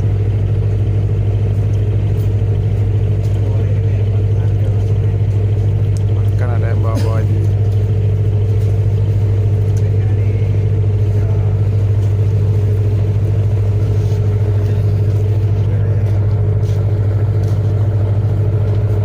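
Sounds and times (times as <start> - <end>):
ferry engine droning: 0.0 - 19.0.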